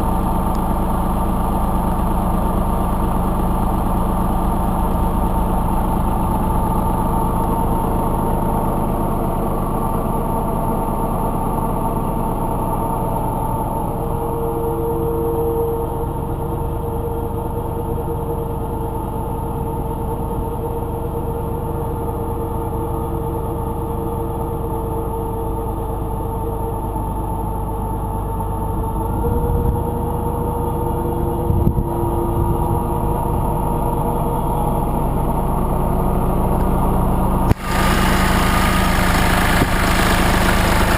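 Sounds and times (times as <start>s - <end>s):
tractor diesel engine running: 0.0s - 40.9s
short loud engine knocks: 37.5s - 40.9s.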